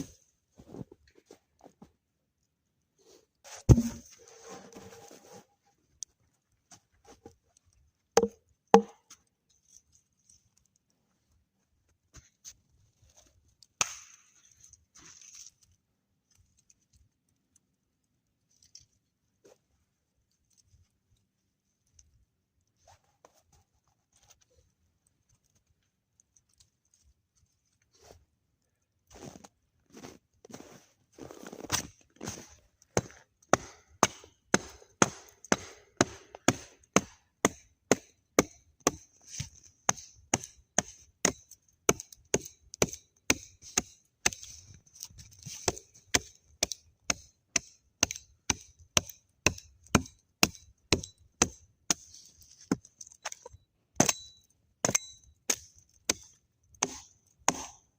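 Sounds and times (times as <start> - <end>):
axe chopping wood: 3.7 - 4.0, 8.2 - 9.0, 13.8 - 14.1, 33.0 - 44.5, 45.6 - 52.0, 54.0 - 57.8.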